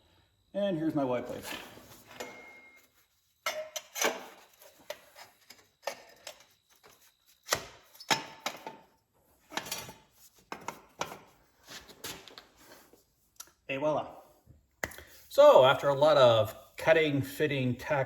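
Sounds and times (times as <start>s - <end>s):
metal pipes knocking and clanking: 3.4s - 4.4s.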